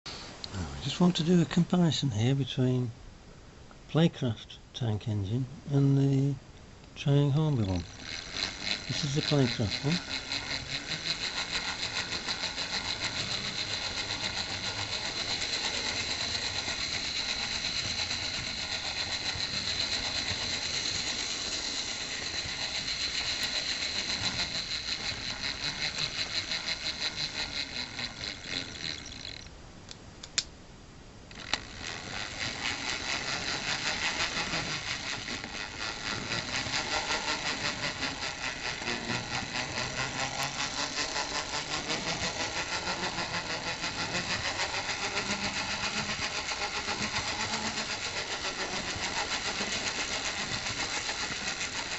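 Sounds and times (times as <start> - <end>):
model locomotive motor whine: 7.0 - 29.5, 31.3 - 51.9
sharp clicks: 28.9 - 30.5.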